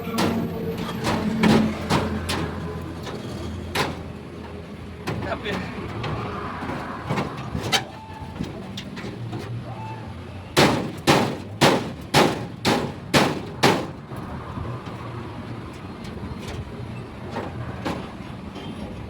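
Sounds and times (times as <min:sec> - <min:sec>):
hammer striking metal: 0:00.0 - 0:02.7.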